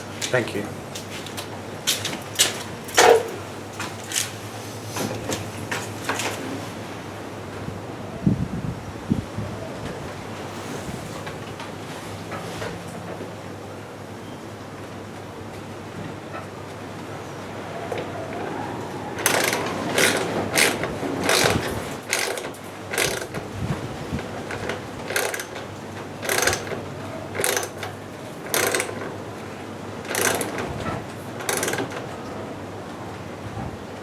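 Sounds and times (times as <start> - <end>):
sharp mechanical clicks: 19.2 - 23.5, 24.4 - 29.1, 30.0 - 30.7, 31.4 - 32.0.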